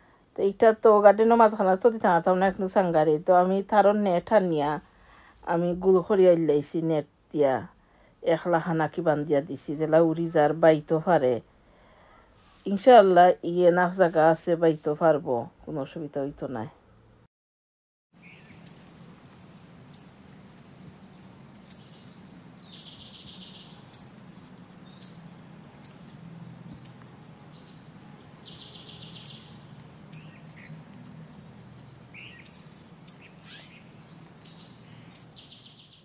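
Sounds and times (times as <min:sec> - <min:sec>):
buzzy bird trills: 0:18.2 - 0:20.2, 0:20.8 - 0:25.2, 0:25.8 - 0:26.1, 0:26.7 - 0:36.0
small birds chirping: 0:18.2 - 0:36.0.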